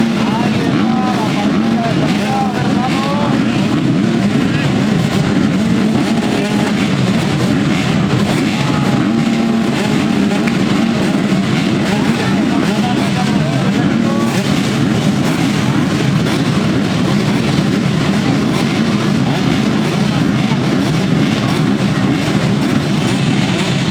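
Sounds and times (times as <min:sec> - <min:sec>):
motocross motorcycles revving: 0:00.0 - 0:23.9.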